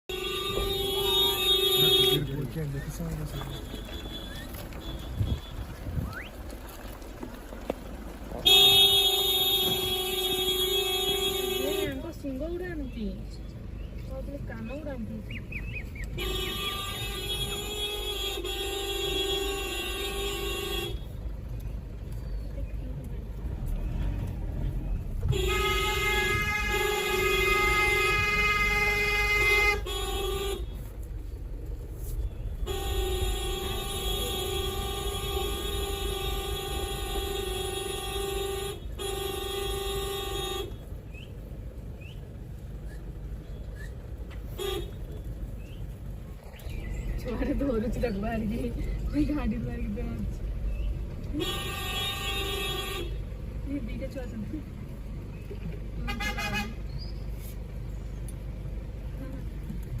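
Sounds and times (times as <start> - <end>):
vehicle horn blast: 0.1 - 6.2, 8.4 - 12.2, 16.1 - 21.2, 25.2 - 31.0, 32.2 - 40.9, 44.5 - 45.2, 51.3 - 53.4, 56.0 - 56.8.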